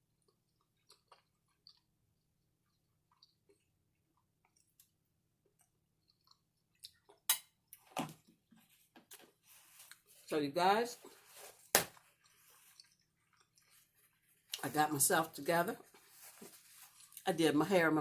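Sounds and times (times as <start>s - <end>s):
person chewing: 0.1s - 10.3s, 11.0s - 14.6s.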